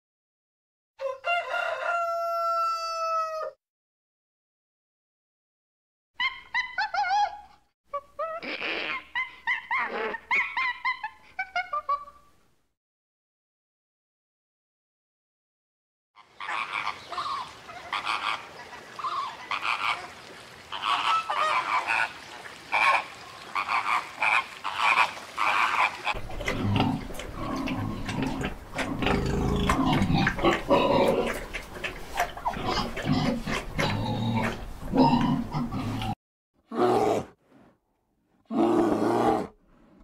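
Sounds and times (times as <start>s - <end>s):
flamingos honking: 16.2s - 26.3s
pigs grunting and squealing: 22.7s - 37.3s, 38.5s - 39.6s.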